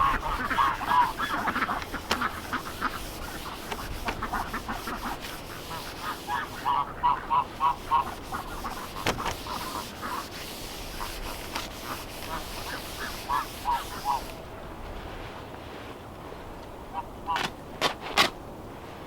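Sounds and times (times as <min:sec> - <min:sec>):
ducks quacking: 0:00.0 - 0:14.4, 0:16.9 - 0:17.6.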